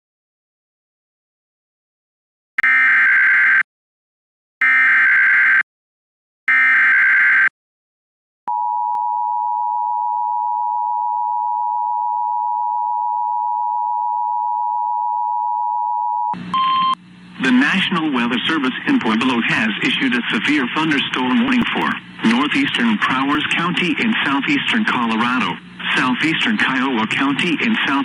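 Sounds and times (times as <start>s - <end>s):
harsh dual-tone alert signal: 16.5s - 18.0s
radio noise burst: 16.9s - 28.0s.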